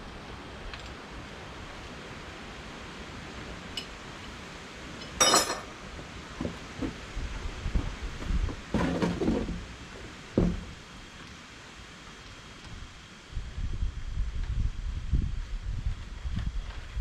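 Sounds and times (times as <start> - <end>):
sharp metallic clank: 5.0 - 5.8.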